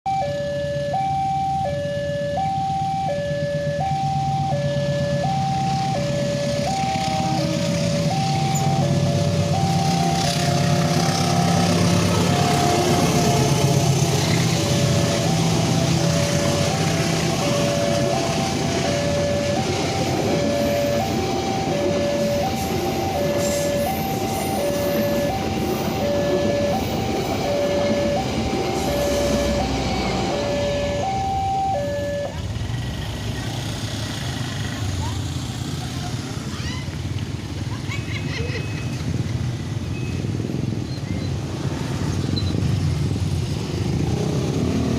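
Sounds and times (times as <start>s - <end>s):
level crossing two-tone alarm: 0.1s - 32.4s
train wheels rumbling on rails: 5.2s - 44.9s.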